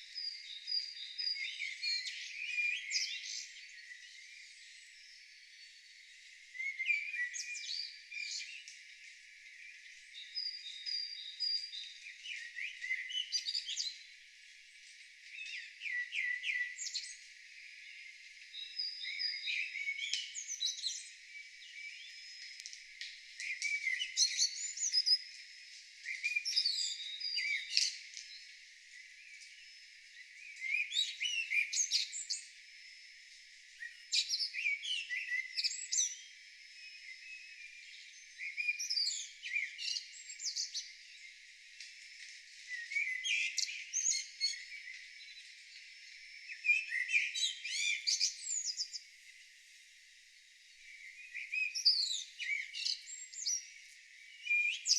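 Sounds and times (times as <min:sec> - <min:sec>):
songbird whistled song: 0:00.0 - 0:54.9.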